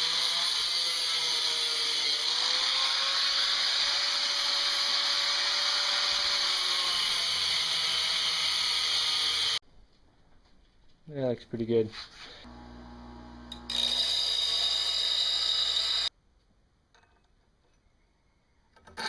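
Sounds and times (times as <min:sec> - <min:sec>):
power tool grinding metal: 0:00.0 - 0:09.6, 0:12.4 - 0:16.1.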